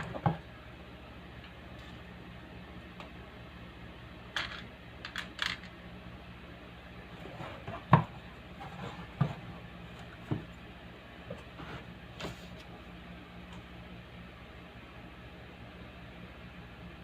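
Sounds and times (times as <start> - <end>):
electrical hum from speaker: 0.0 - 17.0.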